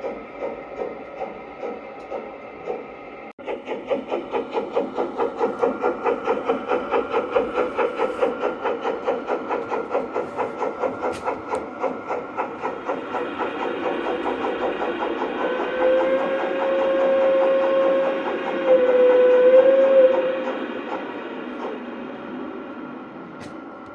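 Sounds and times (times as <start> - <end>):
model steam locomotive chuffing: 0.0 - 23.9
steam whistle: 15.2 - 20.5.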